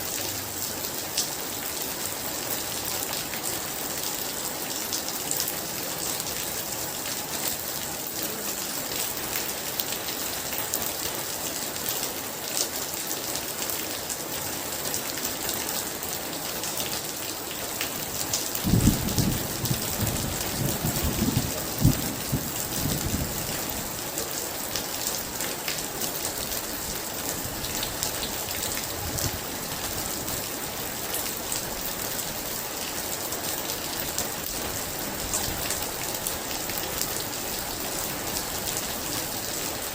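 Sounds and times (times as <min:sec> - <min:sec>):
heavy rain: 0:00.0 - 0:39.9
thunder rumbling: 0:18.6 - 0:23.6.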